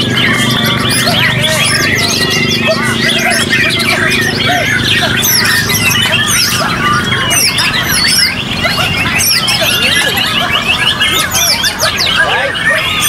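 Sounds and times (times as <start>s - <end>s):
birds singing whistles and trills: 0.0s - 13.0s
murmur of people: 0.0s - 13.0s.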